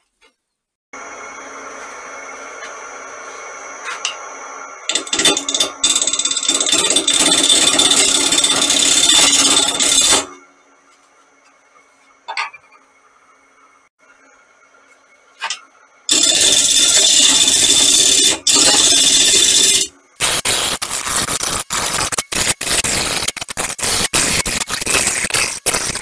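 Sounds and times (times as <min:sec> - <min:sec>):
lathe gouge cutting wood hiss: 0:16.1 - 0:26.0.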